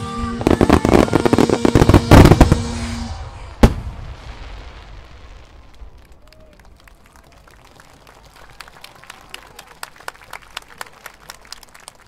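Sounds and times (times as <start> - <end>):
music: 0.0 - 3.2
fireworks bursts and crackling: 0.0 - 10.0
sharp firework bang: 0.6 - 5.2.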